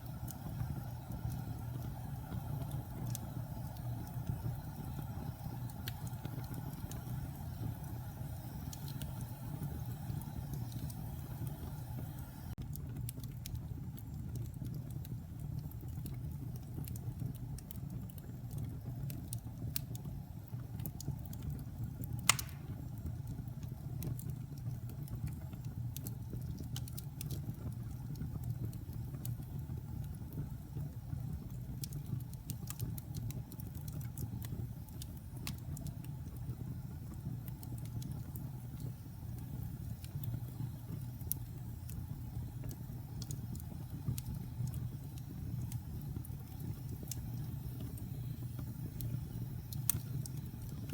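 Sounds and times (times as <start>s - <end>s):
fire crackles: 0.0s - 50.9s
wood fire rumbling: 0.0s - 50.9s
sharp pop of fire: 22.2s - 22.9s.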